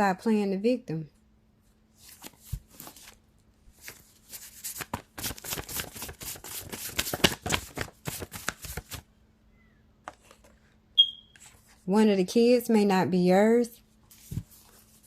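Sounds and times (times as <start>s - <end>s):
cards being shuffled: 2.0s - 9.0s, 14.1s - 15.0s.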